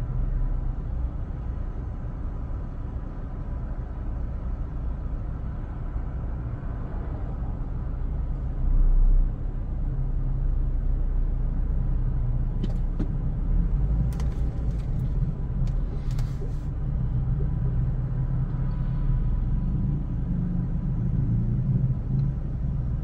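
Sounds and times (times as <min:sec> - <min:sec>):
car engine rumbling: 0:00.0 - 0:23.0.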